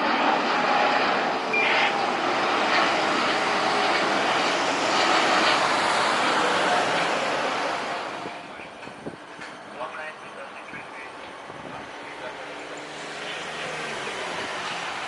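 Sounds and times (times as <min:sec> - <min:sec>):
airliner engines passing: 0:00.0 - 0:15.0.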